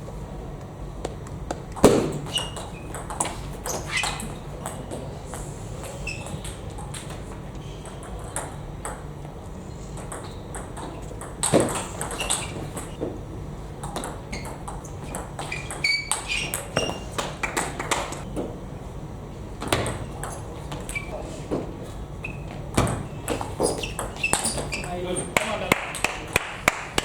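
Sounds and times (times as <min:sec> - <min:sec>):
short shoe squeaks: 0:01.8 - 0:04.4, 0:05.8 - 0:06.7, 0:11.5 - 0:13.0, 0:14.3 - 0:17.2, 0:19.8 - 0:21.2, 0:22.2 - 0:25.3.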